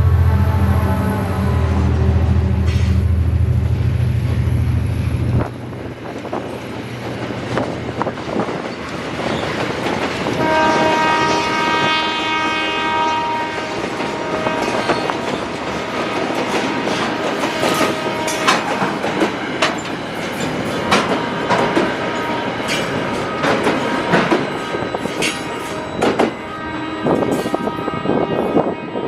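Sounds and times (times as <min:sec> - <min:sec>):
multi-tone air horn: 0:00.0 - 0:03.2, 0:10.4 - 0:18.8, 0:25.7 - 0:29.0
diesel locomotive engine drone: 0:00.0 - 0:29.0
wagon wheels clicking on rail joints: 0:06.1 - 0:10.4.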